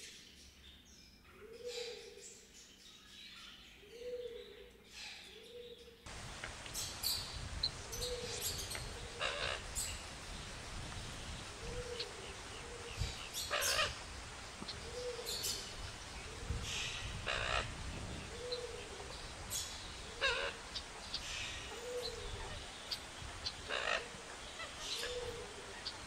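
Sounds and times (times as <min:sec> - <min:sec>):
steady hiss: 0:06.1 - 0:26.0
bird hooting softly: 0:06.5 - 0:10.0, 0:11.4 - 0:26.0.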